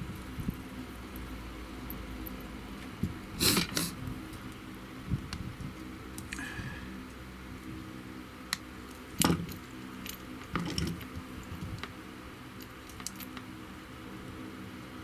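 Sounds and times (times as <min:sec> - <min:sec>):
small metal parts rattling: 0:08.9 - 0:11.9.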